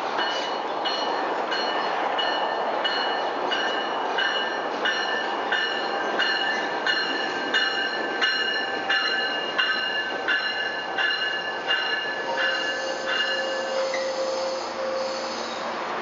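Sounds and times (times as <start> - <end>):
train rumbling: 0.0 - 16.0
braking wheels squealing: 12.3 - 15.8.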